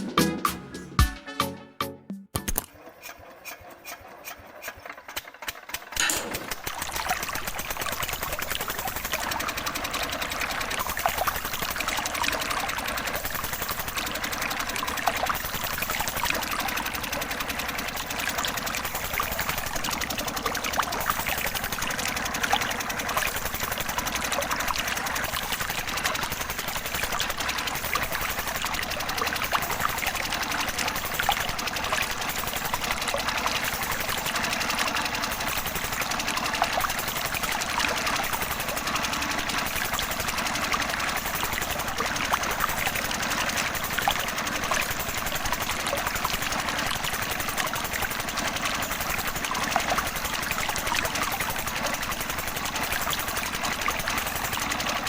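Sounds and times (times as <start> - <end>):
small motor whirring: 5.8 - 55.0
water pouring and trickling: 6.0 - 55.0.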